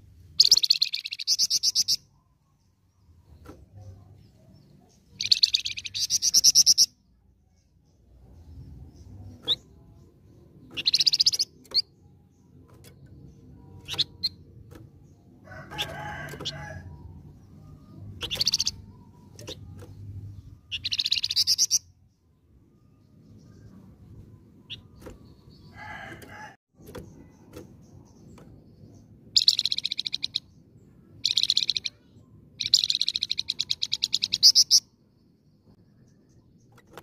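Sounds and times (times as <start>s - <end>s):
songbird rattling trill: 0.4s - 2.1s, 5.2s - 6.9s, 10.6s - 17.2s, 18.2s - 20.1s, 20.7s - 21.8s, 27.2s - 30.5s, 31.2s - 32.0s, 32.6s - 34.8s.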